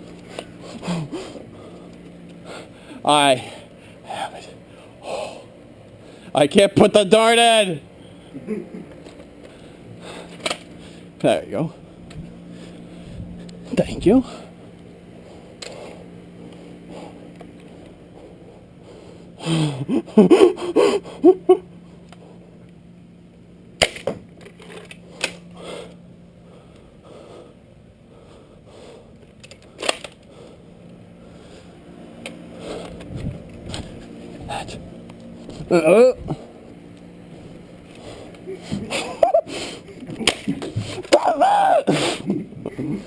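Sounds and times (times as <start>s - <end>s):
person yelping or laughing: 19.5s - 21.6s, 35.7s - 36.3s, 38.5s - 43.0s
person's short loud cry: 41.1s - 42.0s.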